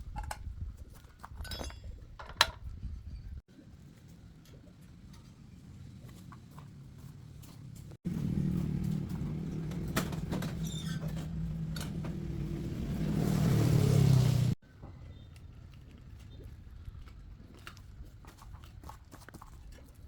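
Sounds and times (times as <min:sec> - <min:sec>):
engine running: 0:08.0 - 0:14.6.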